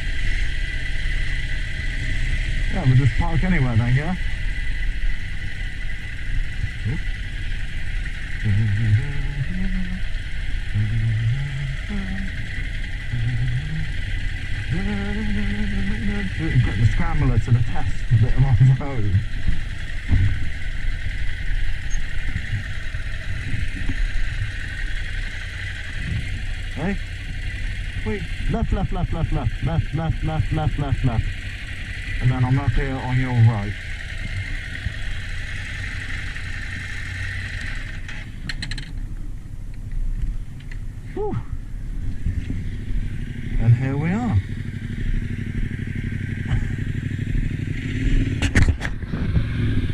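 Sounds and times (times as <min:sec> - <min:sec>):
motorcycle engine running: 0:00.0 - 0:49.9
wind and road noise: 0:00.0 - 0:49.9
short clatter: 0:48.4 - 0:49.4.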